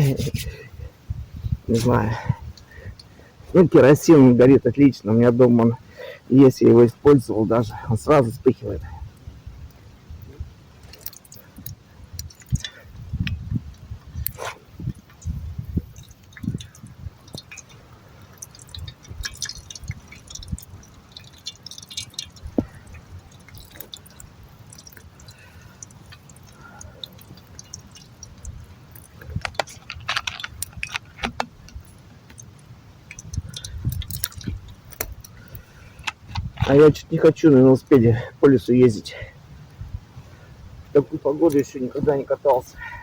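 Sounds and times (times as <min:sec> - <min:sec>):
small objects rustling and clicking: 0:10.3 - 0:37.1.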